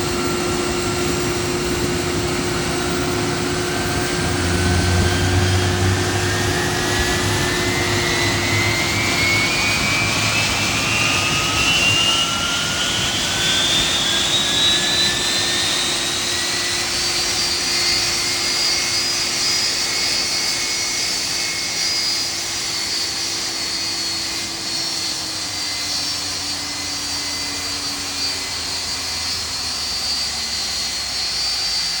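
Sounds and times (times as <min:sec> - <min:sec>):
low steady engine tone: 0:00.0 - 0:20.4
jet engine whine rising: 0:00.0 - 0:32.0.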